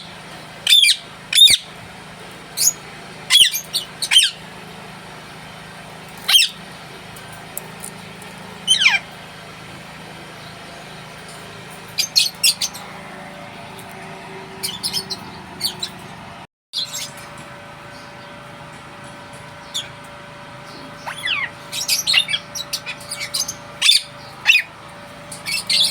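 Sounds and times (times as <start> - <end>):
steady low hum: 0.0 - 25.9
parakeet shrill calls: 0.6 - 1.7, 2.6 - 4.4, 6.2 - 6.6, 8.6 - 9.1, 12.0 - 12.8, 14.6 - 16.0, 21.0 - 24.7, 25.4 - 25.9.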